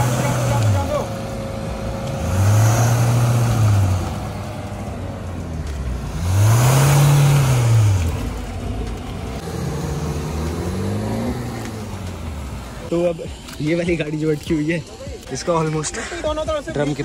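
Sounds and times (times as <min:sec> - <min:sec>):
engine revving hard: 0:00.0 - 0:04.7, 0:05.9 - 0:08.5, 0:09.4 - 0:12.8.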